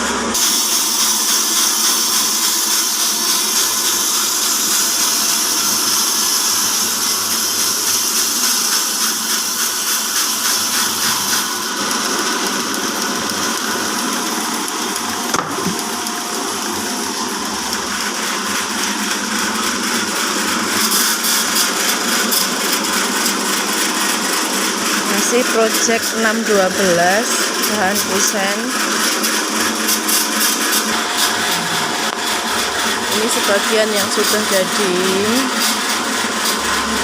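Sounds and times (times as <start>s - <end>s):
band sawmill hissing: 0.4s - 12.4s, 20.5s - 37.0s.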